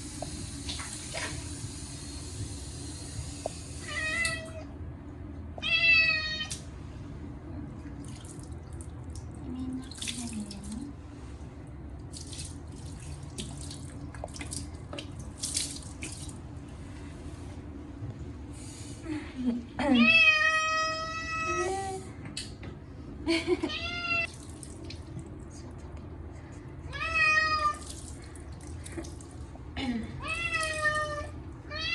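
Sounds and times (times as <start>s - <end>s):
cat meowing loudly: 5.6s - 6.6s, 30.2s - 31.9s
running water: 7.8s - 11.0s, 12.0s - 16.4s
water splashing: 8.0s - 10.9s, 12.1s - 16.4s.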